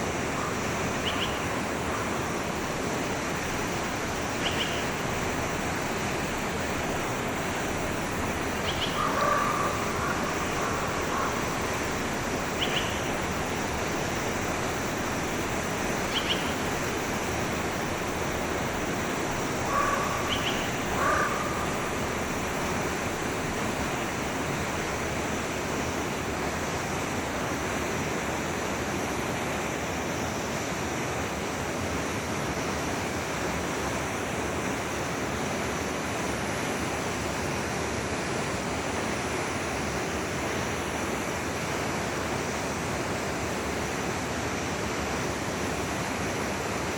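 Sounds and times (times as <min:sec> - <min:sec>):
forest stream flowing: 0:00.0 - 0:46.9
short bird calls: 0:16.1 - 0:16.6, 0:19.6 - 0:21.8.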